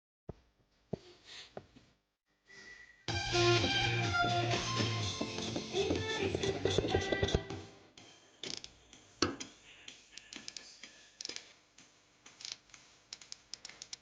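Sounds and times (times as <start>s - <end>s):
hand tools clicking on metal: 12.3s - 14.0s.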